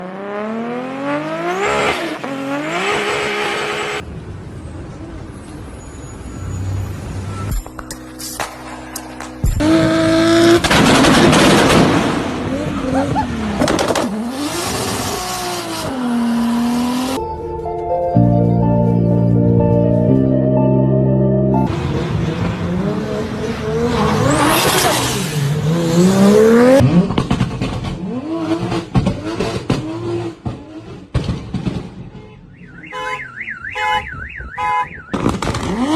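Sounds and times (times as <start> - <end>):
car engine and exhaust revving: 0.0 - 4.0, 7.0 - 17.2, 21.6 - 33.2, 35.0 - 35.9
exhaust cracks: 7.8 - 12.7, 26.8 - 32.1, 35.1 - 35.9
car engine accelerating hard: 21.7 - 31.1.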